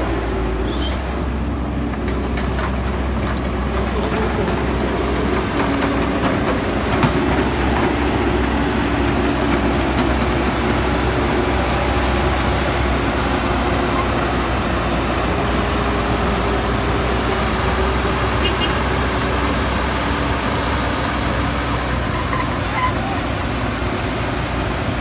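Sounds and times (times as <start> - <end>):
excavator diesel engine running: 0.0 - 25.0
hydraulics humming: 0.0 - 25.0.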